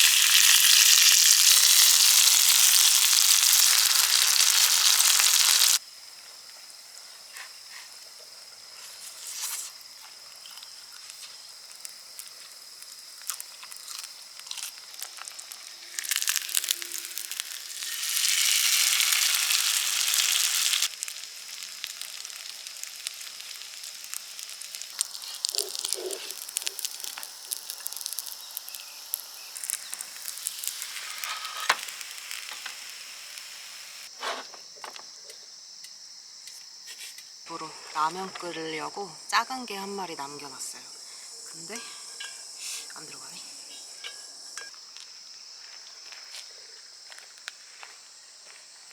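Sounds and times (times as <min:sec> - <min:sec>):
food sizzling in a hot pan: 0:00.0 - 0:05.8, 0:11.0 - 0:34.1
crickets chirping: 0:00.0 - 0:48.9.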